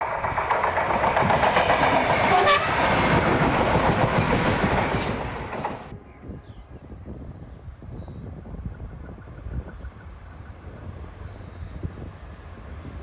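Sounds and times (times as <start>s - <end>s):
wheel clatter over rail joints: 0.0s - 5.9s
freight train passing: 0.0s - 7.7s, 8.3s - 13.0s
train horn note: 2.2s - 3.0s.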